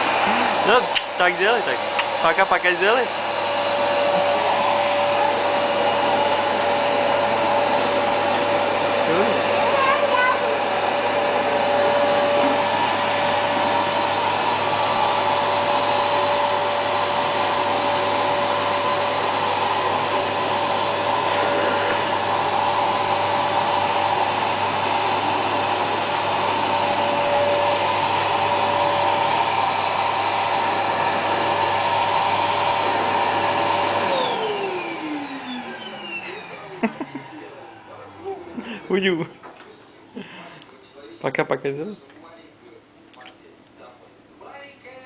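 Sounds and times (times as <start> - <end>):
vacuum cleaner motor whining: 0.0 - 40.6.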